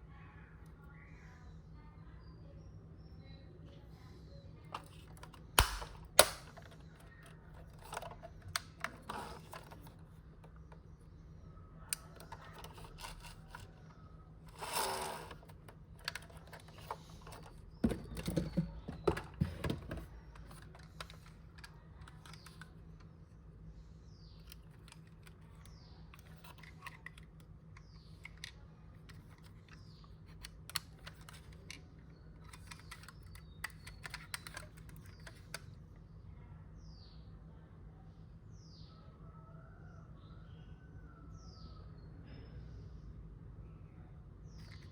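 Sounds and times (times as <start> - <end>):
toy car packaging clicks and taps: 18.2 - 22.8, 26.2 - 35.7.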